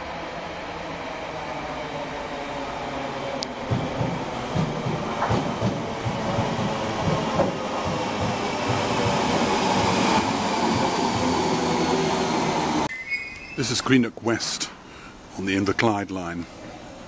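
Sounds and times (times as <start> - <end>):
train wheels clicking on rails: 3.3 - 12.6
electric train running: 3.4 - 12.9.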